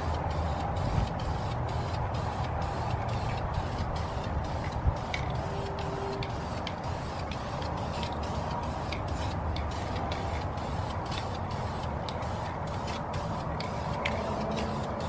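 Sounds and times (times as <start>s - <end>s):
aerosol can spraying hiss: 0.0s - 15.0s
wind rumbling on microphone: 0.6s - 6.5s.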